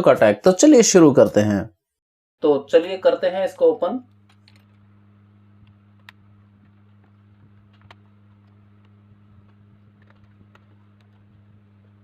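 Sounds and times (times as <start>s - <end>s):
low steady hum: 2.4s - 12.0s.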